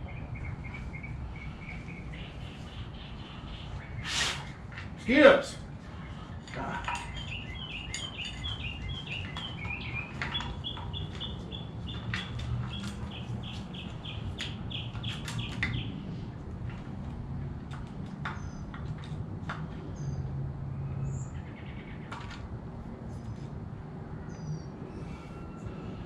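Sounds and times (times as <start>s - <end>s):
songbird chirping: 0.0s - 4.4s, 5.9s - 16.0s.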